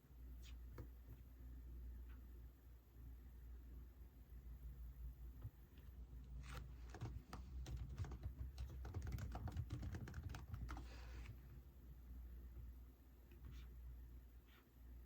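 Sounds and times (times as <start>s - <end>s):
keyboard typing clicks: 6.8s - 10.9s.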